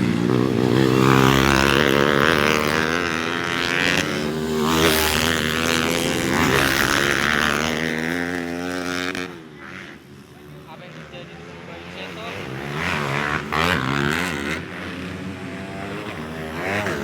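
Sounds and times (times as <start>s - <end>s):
trail motorcycles revving: 0.0s - 17.0s.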